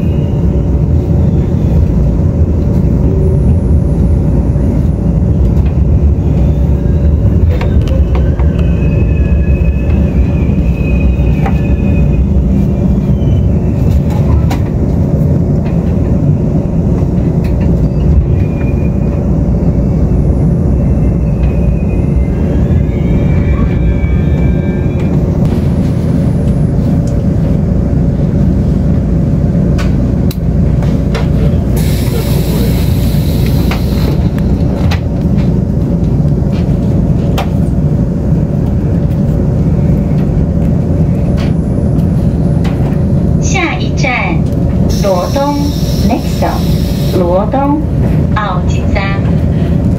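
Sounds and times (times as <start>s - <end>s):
train rumbling inside carriage: 0.0s - 49.9s
faint high squeals: 20.9s - 25.2s.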